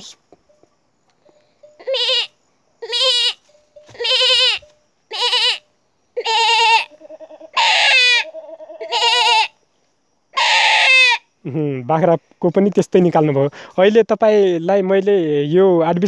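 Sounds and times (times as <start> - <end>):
boy imitating goat bleats: 1.7 - 9.6, 10.4 - 11.3.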